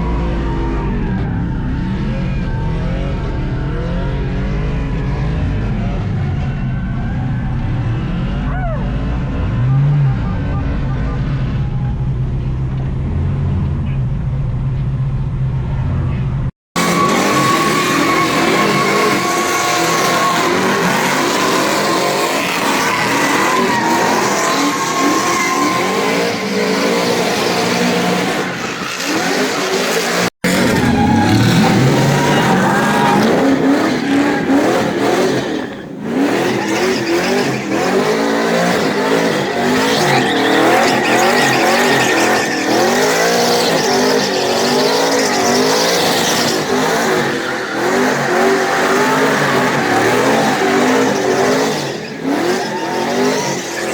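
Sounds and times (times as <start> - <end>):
truck engine revving: 0.0 - 53.9
tyres squealing: 16.8 - 53.9.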